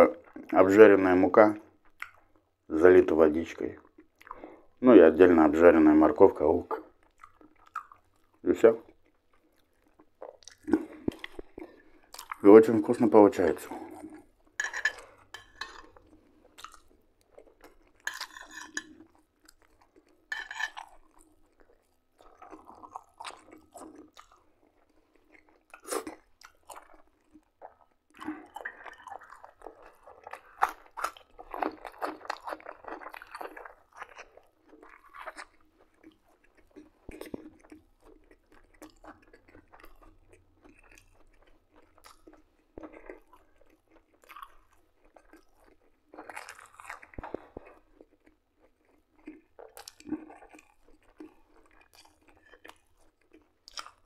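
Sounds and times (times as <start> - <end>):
man chewing food: 1.6 - 2.7, 3.7 - 4.8, 6.6 - 54.0
wet mouth noises: 6.6 - 12.5
crunchy bites: 43.9 - 52.6.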